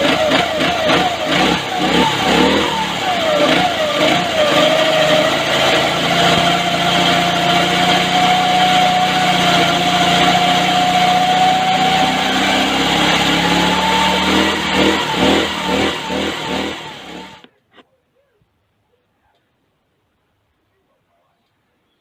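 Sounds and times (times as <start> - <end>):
go-kart engine revving: 0.0 - 17.5.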